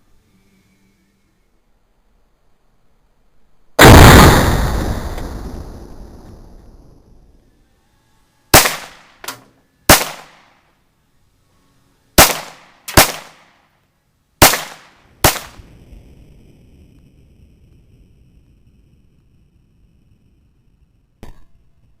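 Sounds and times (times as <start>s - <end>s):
loud pistol shots: 3.8s - 6.6s, 8.6s - 9.1s, 9.9s - 10.4s, 12.2s - 13.5s, 14.4s - 15.6s.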